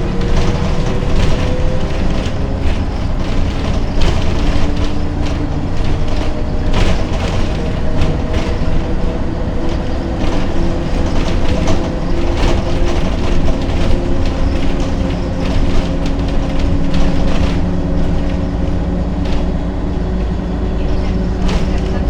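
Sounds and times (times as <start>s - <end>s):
bus body rattling: 0.0s - 22.0s
bus diesel engine running: 0.0s - 22.0s.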